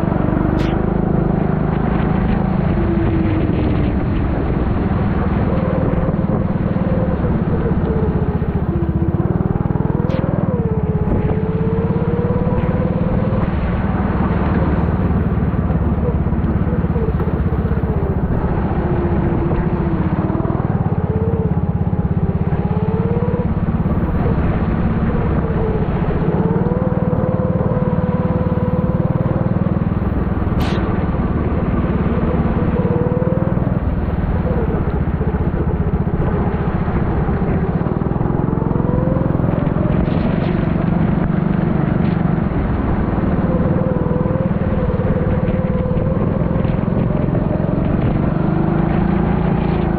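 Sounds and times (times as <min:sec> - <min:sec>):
kart engine revving: 0:00.0 - 0:49.9
sharp click: 0:00.5 - 0:00.8, 0:30.5 - 0:31.0.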